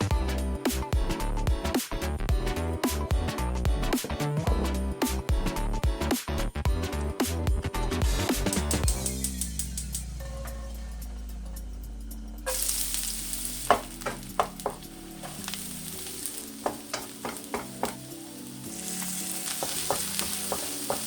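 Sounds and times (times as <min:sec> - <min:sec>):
background music: 0:00.0 - 0:21.0
food sizzling in a hot pan: 0:12.5 - 0:21.0.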